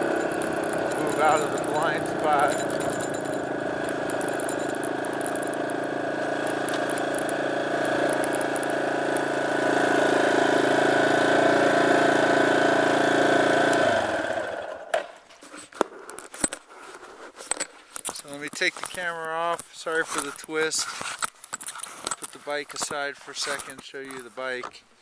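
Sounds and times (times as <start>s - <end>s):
dirt bike engine running: 0.0s - 14.9s.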